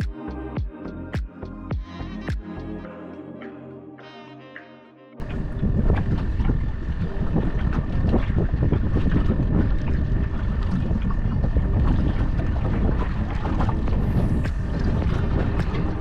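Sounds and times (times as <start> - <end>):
wind buffeting microphone: 5.2 - 16.0.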